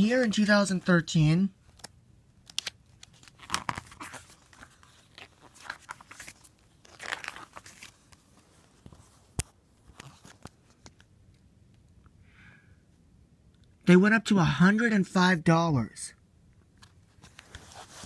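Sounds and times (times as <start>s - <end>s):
paper pages rustling: 1.7s - 11.1s, 16.8s - 18.0s.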